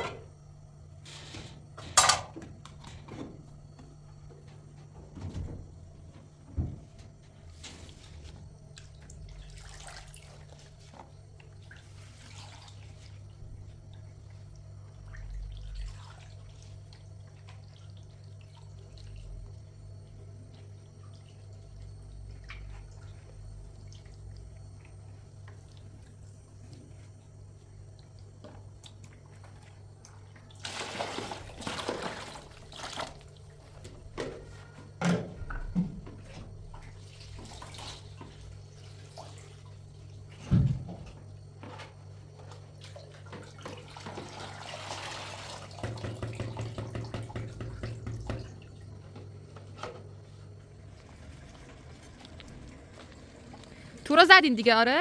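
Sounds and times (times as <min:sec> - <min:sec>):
steady low hum: 0:00.0 - 0:30.6
water splashing and dripping: 0:07.9 - 0:19.6.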